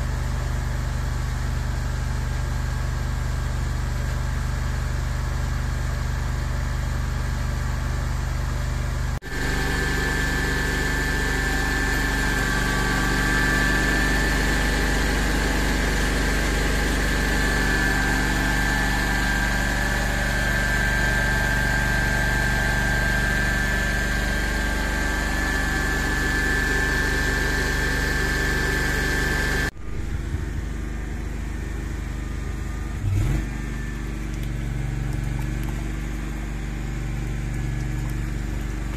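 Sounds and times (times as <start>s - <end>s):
machine engine humming: 6.1s - 38.9s
steady high whine: 9.2s - 33.1s.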